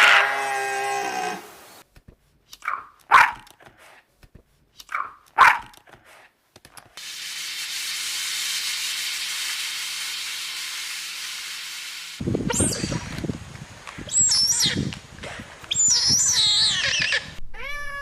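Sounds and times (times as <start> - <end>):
dog barking: 2.6 - 3.5, 4.9 - 5.8
steady hiss: 7.0 - 15.7.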